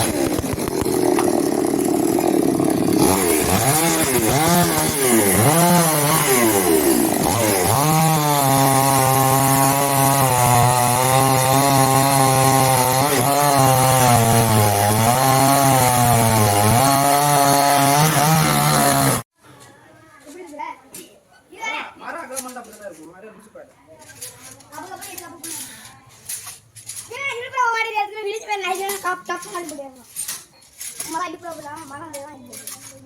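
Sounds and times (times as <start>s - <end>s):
chainsaw cutting wood: 0.0s - 19.3s.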